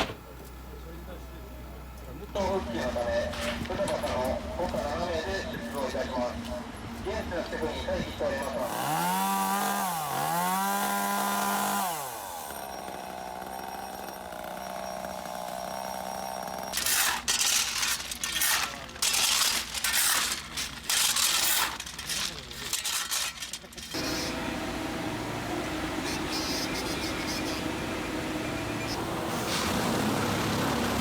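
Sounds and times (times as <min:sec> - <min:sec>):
chainsaw engine revving: 0:08.6 - 0:17.0, 0:23.9 - 0:31.0
loud irregular noisy bursts: 0:23.9 - 0:31.0.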